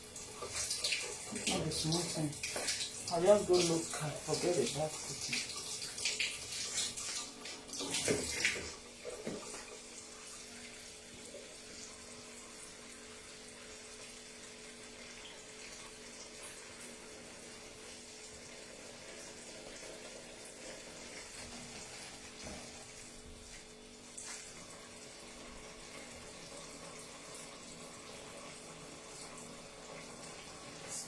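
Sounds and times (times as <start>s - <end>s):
tap water running into sink: 0.0s - 31.0s
splashing and clatter: 0.4s - 9.7s.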